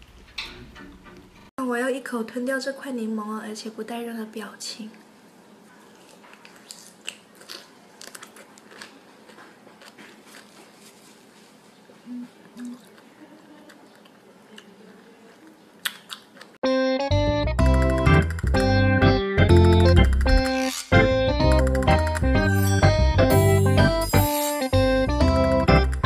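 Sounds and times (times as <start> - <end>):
person chewing lemon: 5.9 - 11.0, 12.4 - 16.6
loud keyboard music: 16.6 - 26.0.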